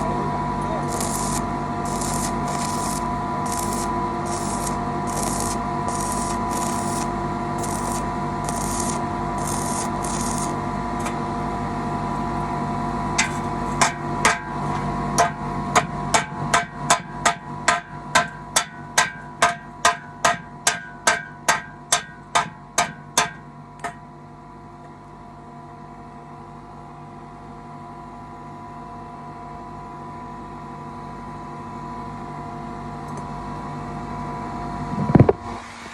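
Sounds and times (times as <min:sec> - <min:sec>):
steady electrical hum: 0:00.0 - 0:20.7
short hissing pulses: 0:00.8 - 0:10.6
hammer striking metal: 0:15.2 - 0:24.0.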